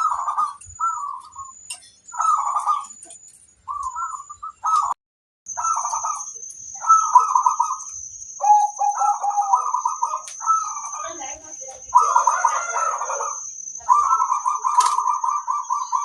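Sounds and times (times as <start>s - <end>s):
doves cooing: 0.0s - 5.0s, 5.6s - 16.0s.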